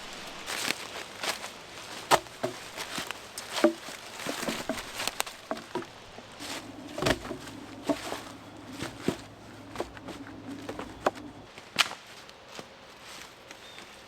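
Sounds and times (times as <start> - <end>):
rustling on dry leaves: 0.0 - 14.0
clicks and knocks of gear: 1.9 - 12.0.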